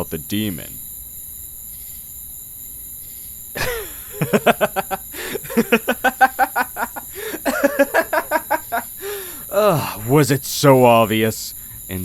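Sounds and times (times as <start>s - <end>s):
faint insects chirring: 0.0s - 12.0s
sharp intake of breath: 3.6s - 4.2s, 5.0s - 5.7s, 7.0s - 7.5s, 8.8s - 10.1s, 11.6s - 11.9s
man laughing: 3.6s - 10.2s.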